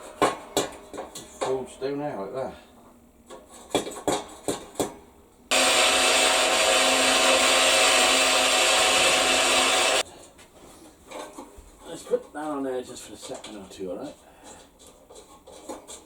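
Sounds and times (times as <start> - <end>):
metal knocks and clatters: 0.0 - 1.7, 3.3 - 5.0
electric power tool running: 5.5 - 10.0.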